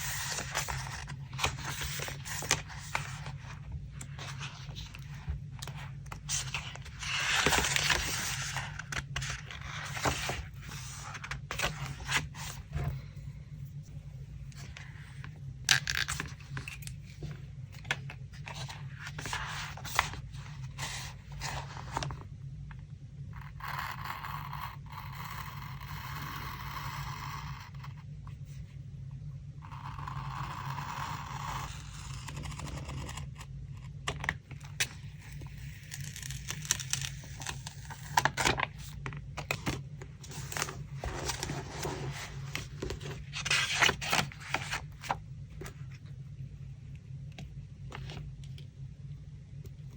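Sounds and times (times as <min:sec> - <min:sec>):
paper crackling and rustling: 0:00.0 - 0:13.0, 0:14.5 - 0:22.3, 0:34.2 - 0:45.9
low steady hum: 0:00.0 - 0:49.9.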